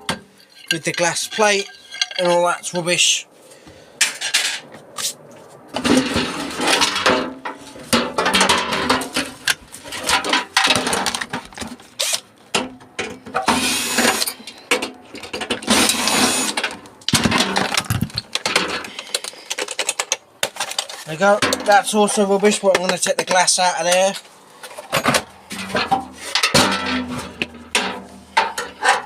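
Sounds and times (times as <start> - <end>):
microwave parts clattering: 0.0 - 2.7, 5.8 - 22.2, 23.8 - 29.0.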